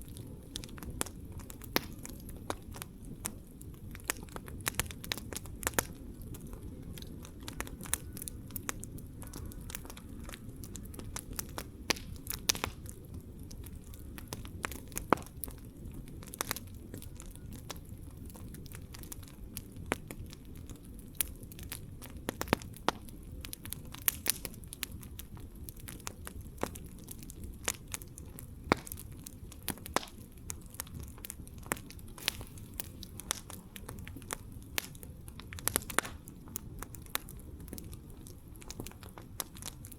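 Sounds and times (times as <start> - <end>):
burning wood popping and snapping: 0.0 - 39.9
low rumble of flames: 0.0 - 39.9.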